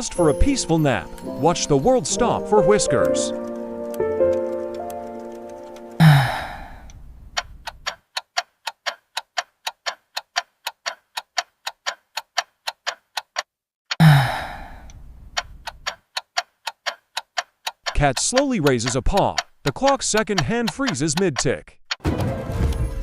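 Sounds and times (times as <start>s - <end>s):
clock ticking fast: 0.0s - 22.0s
breathy sigh-like sound: 6.0s - 6.9s, 14.0s - 14.9s.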